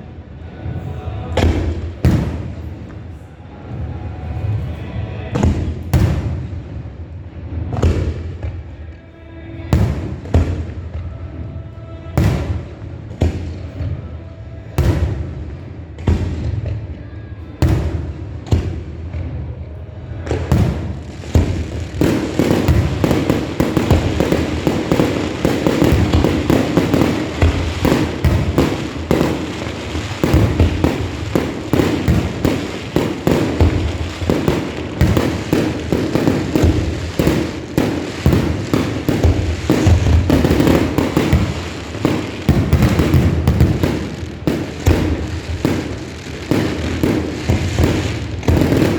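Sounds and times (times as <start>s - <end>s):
rapid crackling firework bursts: 20.6s - 48.9s.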